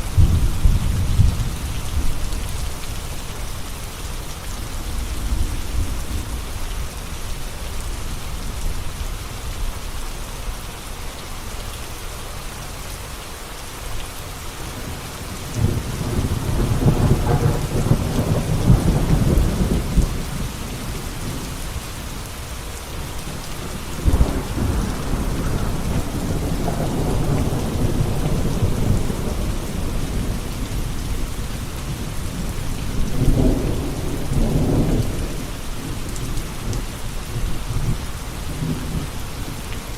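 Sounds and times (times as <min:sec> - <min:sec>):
rolling thunder: 0:00.0 - 0:02.3, 0:14.7 - 0:21.6, 0:23.0 - 0:36.8
steady rain: 0:00.0 - 0:39.9.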